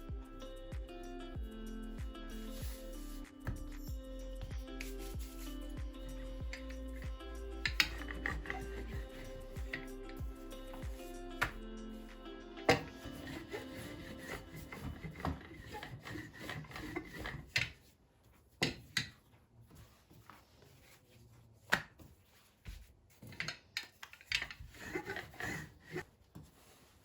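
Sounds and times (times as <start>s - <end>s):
hands rubbing and scraping: 2.3s - 18.5s.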